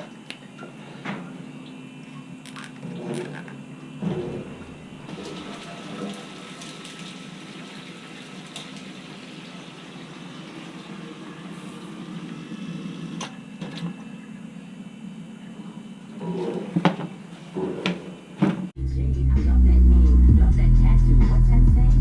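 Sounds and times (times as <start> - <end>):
water running: 1.5 - 14.5.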